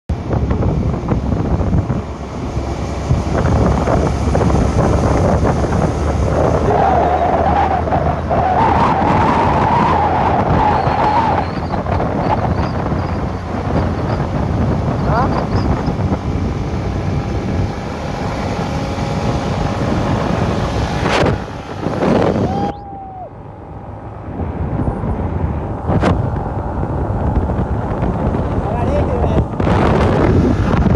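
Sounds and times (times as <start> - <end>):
low rumble: 0.1 - 30.9
wind buffeting microphone: 0.1 - 30.9
higher hum: 12.8 - 30.9.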